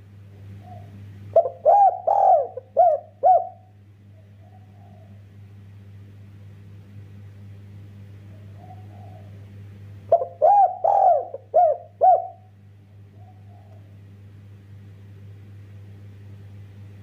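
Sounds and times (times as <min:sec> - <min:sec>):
dove cooing: 0:00.5 - 0:05.3, 0:08.3 - 0:09.5, 0:10.1 - 0:12.5, 0:13.1 - 0:14.0.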